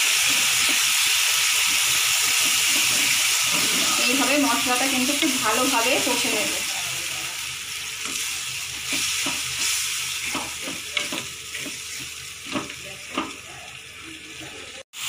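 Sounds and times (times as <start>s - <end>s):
masala sizzling in a pan: 0.0s - 15.0s.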